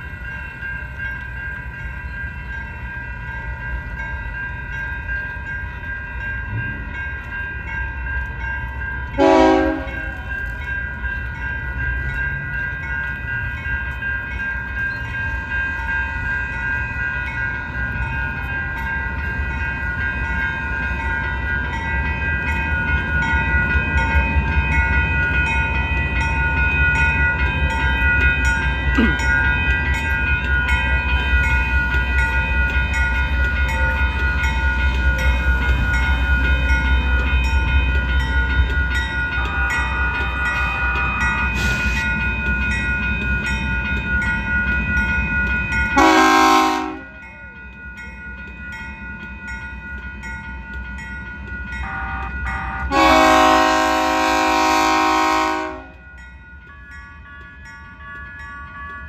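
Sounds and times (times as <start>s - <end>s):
crossing warning bells ringing: 0.0s - 59.0s
diesel locomotive rumble: 0.0s - 59.0s
train horn blasts: 9.2s - 10.2s, 46.0s - 47.1s, 51.8s - 56.0s.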